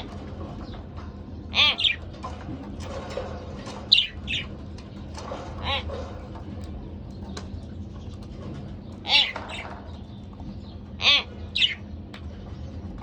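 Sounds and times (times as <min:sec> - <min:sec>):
budgerigars chirping: 0:01.5 - 0:02.0, 0:03.9 - 0:04.5, 0:05.6 - 0:06.0, 0:09.0 - 0:09.8, 0:11.0 - 0:11.9.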